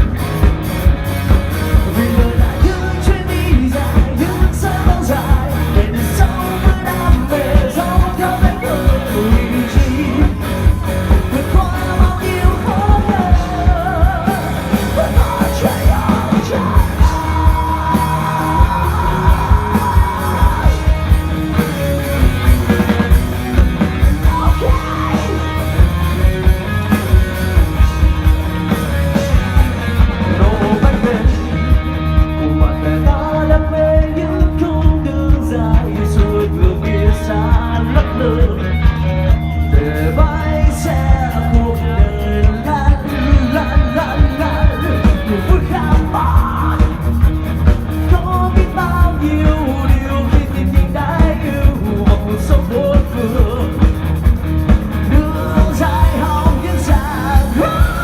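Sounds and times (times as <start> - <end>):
drum beat: 0.0 - 38.2
bass and electric guitars: 0.0 - 58.0
person singing: 1.7 - 21.2, 24.0 - 25.8, 30.2 - 31.7, 32.5 - 47.1, 55.0 - 58.0.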